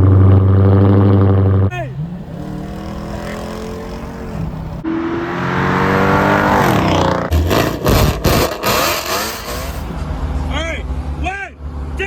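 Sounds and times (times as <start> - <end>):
car engine revving: 0.0 - 10.0
exhaust cracks: 5.6 - 10.0.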